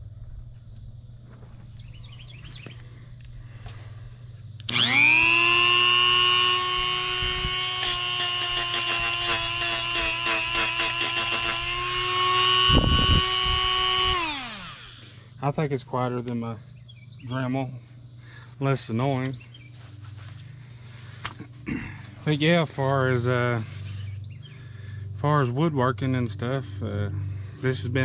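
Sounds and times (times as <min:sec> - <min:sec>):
die grinder whining: 0:04.6 - 0:15.2.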